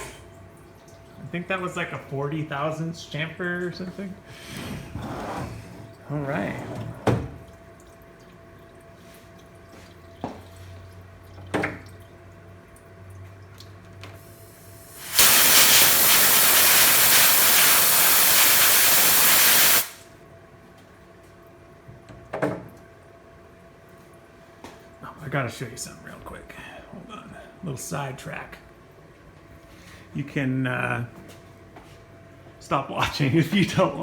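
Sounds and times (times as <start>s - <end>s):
low shop hum: 0.0s - 34.0s
compressed air blow gun hissing: 14.3s - 20.0s.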